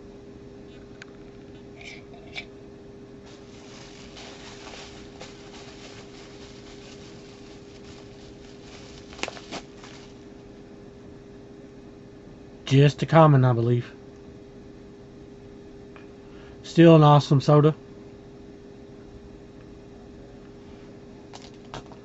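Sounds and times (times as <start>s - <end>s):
steady low hum: 0.0s - 22.0s
faint crinkling and rustling: 3.3s - 10.4s.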